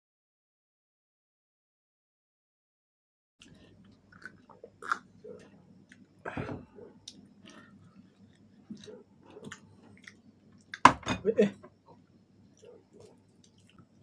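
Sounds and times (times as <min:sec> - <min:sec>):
chewing fried chicken: 0:03.4 - 0:10.9, 0:11.8 - 0:14.0.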